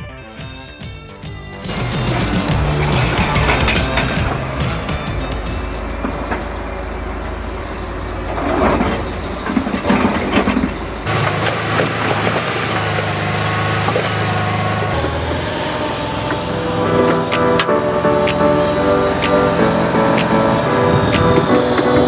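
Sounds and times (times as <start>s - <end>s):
excavator engine running: 1.6s - 22.0s.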